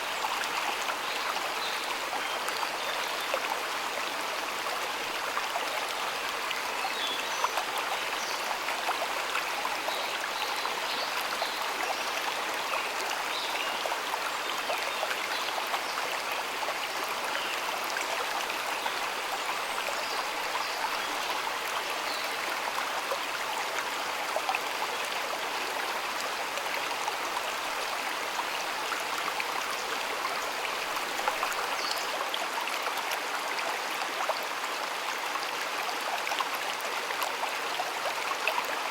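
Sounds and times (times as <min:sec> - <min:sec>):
stream of water flowing: 0:00.0 - 0:38.9.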